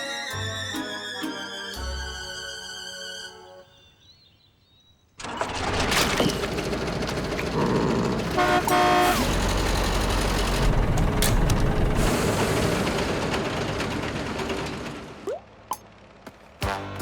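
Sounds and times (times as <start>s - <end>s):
cartoon vehicle motor running: 5.2s - 12.0s
short horn toots: 8.3s - 9.6s.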